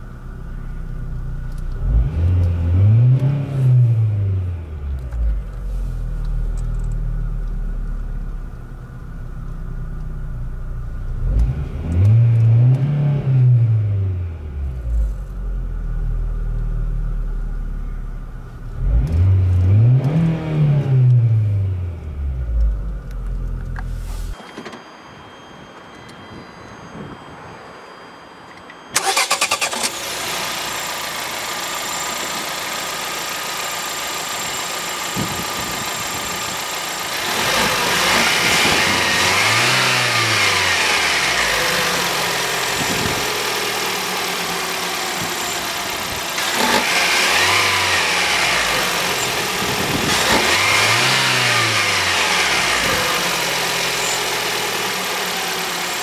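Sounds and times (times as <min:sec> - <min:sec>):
car engine starting and idling: 0:00.0 - 0:24.4, 0:28.8 - 0:56.0
car engine revving: 0:01.6 - 0:08.4, 0:18.7 - 0:24.4, 0:29.0 - 0:56.0.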